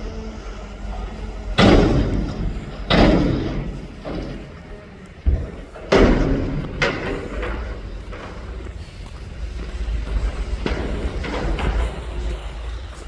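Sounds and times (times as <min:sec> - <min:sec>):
garbage truck engine rumbling: 0:00.0 - 0:13.0.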